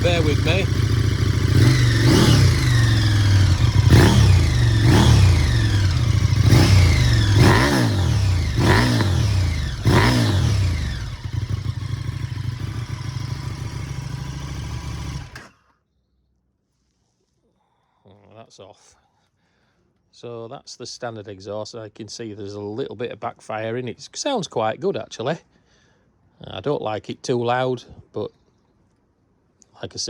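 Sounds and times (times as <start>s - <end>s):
exhaust backfiring: 0.0s - 15.5s
motorcycle idling: 0.0s - 15.5s
motorcycle engine revving: 0.0s - 15.6s.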